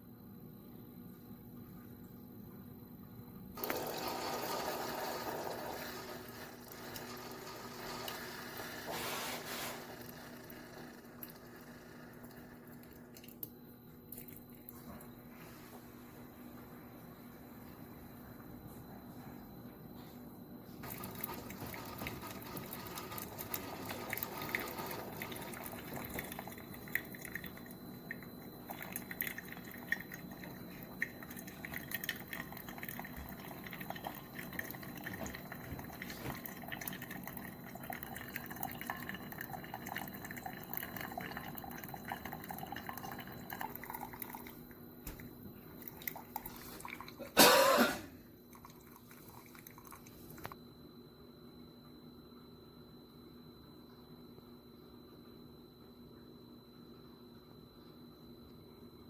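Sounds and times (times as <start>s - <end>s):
coffee dripping into a mug: 3.6s - 8.9s, 9.9s - 14.8s, 20.8s - 47.3s, 48.4s - 50.6s
coffee maker sputtering: 3.6s - 13.4s, 20.8s - 47.2s, 48.5s - 50.6s
coffee maker brewing: 3.6s - 15.0s, 20.6s - 47.5s, 48.3s - 50.6s.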